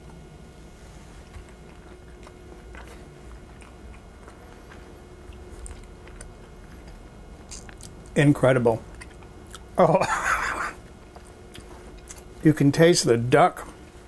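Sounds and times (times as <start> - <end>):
person chewing food: 1.2 - 8.2, 8.8 - 9.8, 10.6 - 12.4.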